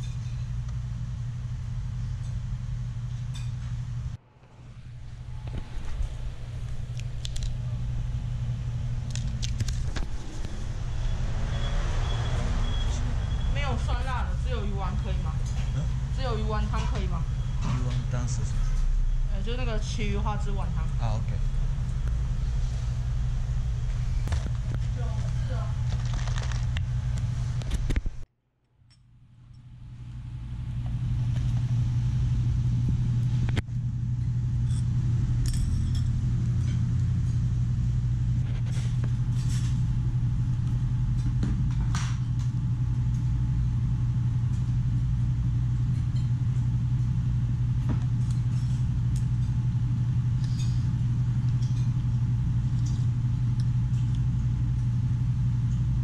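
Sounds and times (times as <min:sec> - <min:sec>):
low machine hum: 0:00.0 - 0:56.0.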